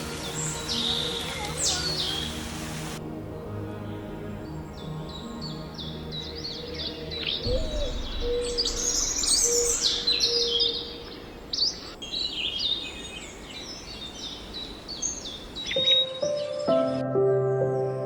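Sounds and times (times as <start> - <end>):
small birds chirping: 0.0 - 3.0, 3.7 - 18.0
low repeated bird note: 7.4 - 11.2.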